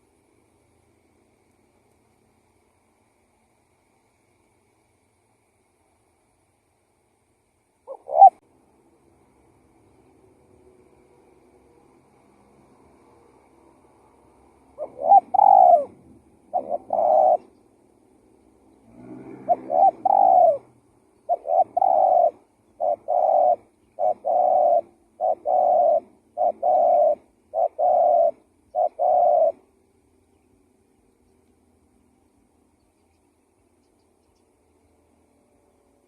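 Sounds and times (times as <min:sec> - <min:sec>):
dove cooing: 0:07.8 - 0:08.4, 0:14.7 - 0:17.7, 0:18.8 - 0:29.7.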